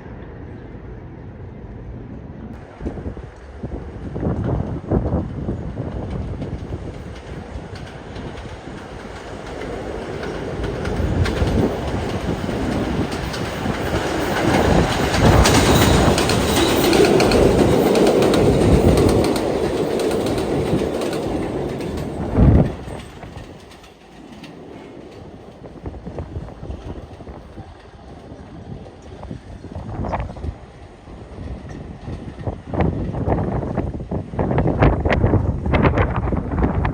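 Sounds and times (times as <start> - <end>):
subway train running: 0.0 - 36.9
wheels clattering over rail joints: 5.5 - 30.4.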